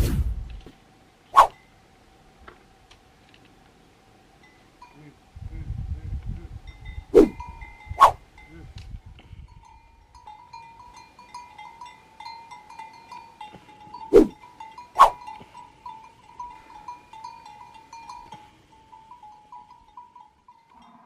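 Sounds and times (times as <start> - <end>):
metal livestock bells clanking: 6.6 - 8.7, 9.3 - 21.0.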